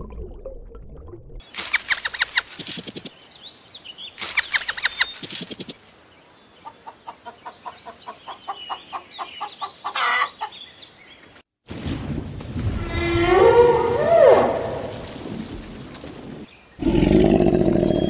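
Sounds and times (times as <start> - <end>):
birds chirping: 1.4 - 11.4, 16.5 - 18.0.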